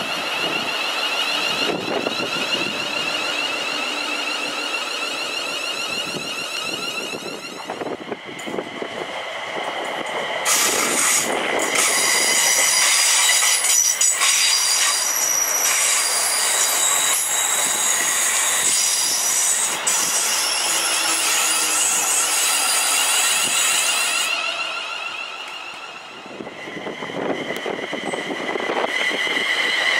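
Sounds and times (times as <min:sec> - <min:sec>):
high-pitched squealing tones: 0:00.0 - 0:08.2, 0:10.5 - 0:29.9
wheel-on-rail noise: 0:00.0 - 0:29.9.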